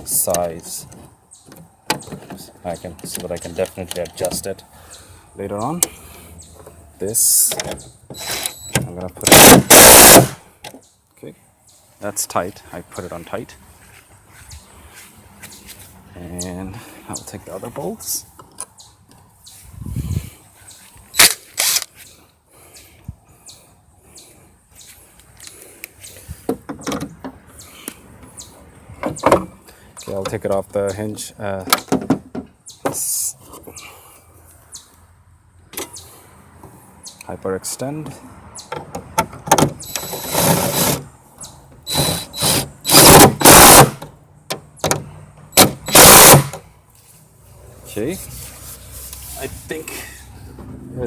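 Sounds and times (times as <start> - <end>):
cordless drill bursts: 8.2 - 8.7, 9.3 - 10.4, 39.8 - 41.0, 41.9 - 44.0, 45.6 - 46.6.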